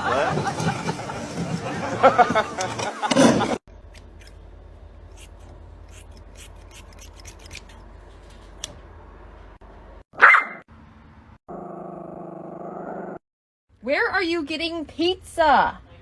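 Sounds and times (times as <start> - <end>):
dog barking: 10.2 - 10.6.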